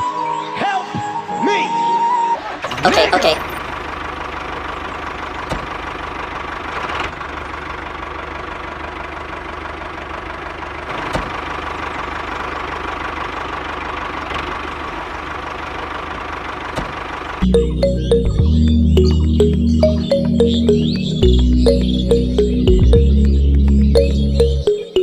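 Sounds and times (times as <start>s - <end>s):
music: 0.0s - 2.4s, 17.4s - 25.0s
engine idling with knocking: 2.6s - 17.7s.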